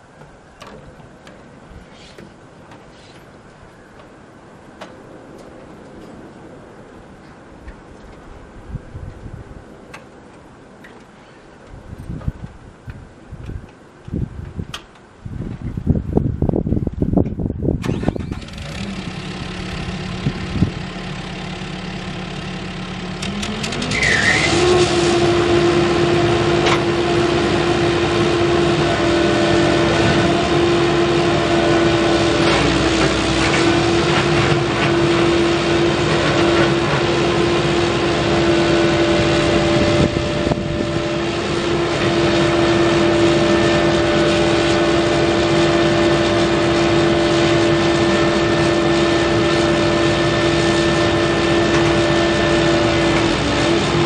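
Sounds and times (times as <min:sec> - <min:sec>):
diesel engine revving up: 0:17.8 - 0:54.0.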